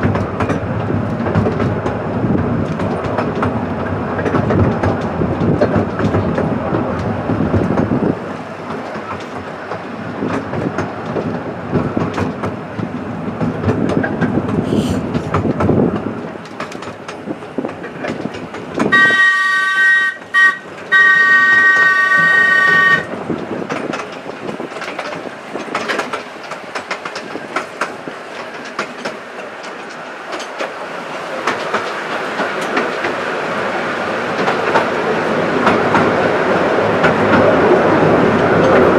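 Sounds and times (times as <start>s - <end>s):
train wheels clickety-clack: 0.0s - 38.9s
train horn chord: 18.9s - 23.1s.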